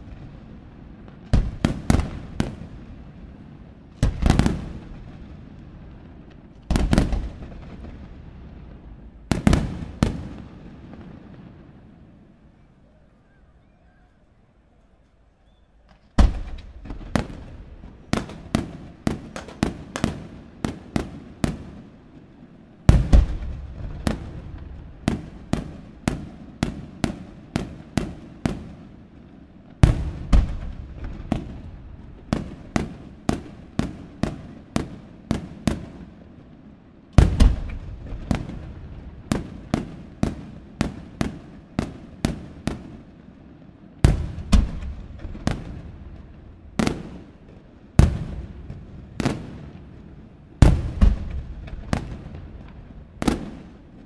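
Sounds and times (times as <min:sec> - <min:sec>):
firework crackling: 0:00.0 - 0:12.4, 0:15.9 - 0:54.0
firework shell booms: 0:37.2 - 0:38.6.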